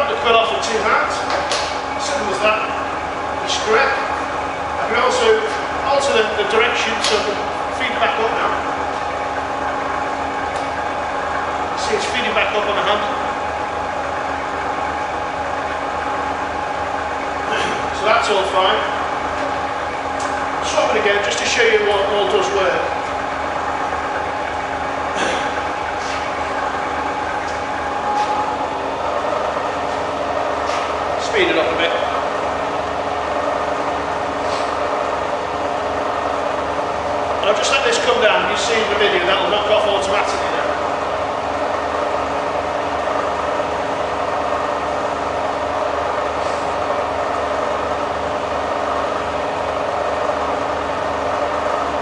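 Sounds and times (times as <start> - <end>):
milling machine humming: 0.0 - 52.0.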